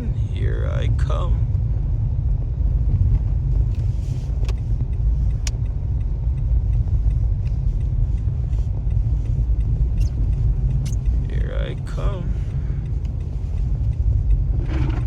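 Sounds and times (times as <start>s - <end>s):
car rumble inside cabin: 0.0s - 15.0s
sharp clicks: 9.6s - 11.9s.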